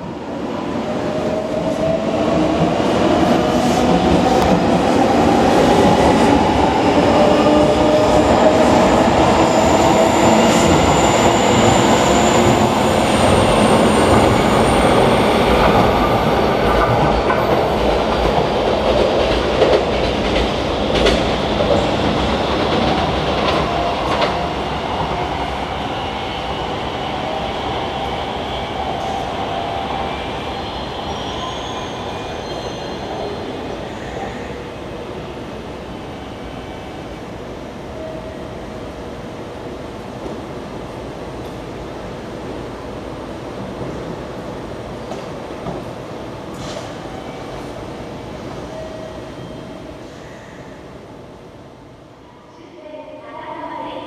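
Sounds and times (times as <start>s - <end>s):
train wheels rumbling on rail: 1.0s - 30.5s.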